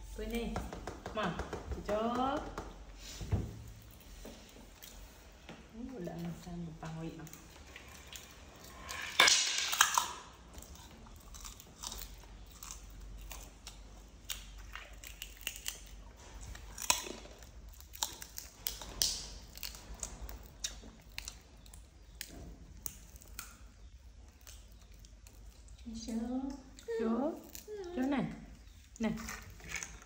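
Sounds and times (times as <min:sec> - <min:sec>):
monkeys crunching snacks: 0:07.0 - 0:30.0.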